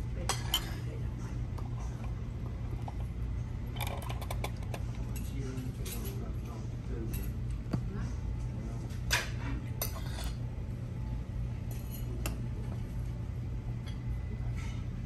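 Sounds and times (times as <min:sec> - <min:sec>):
utensils clinking on plates: 0:00.2 - 0:01.0, 0:03.8 - 0:07.4, 0:09.1 - 0:10.4, 0:11.7 - 0:12.8.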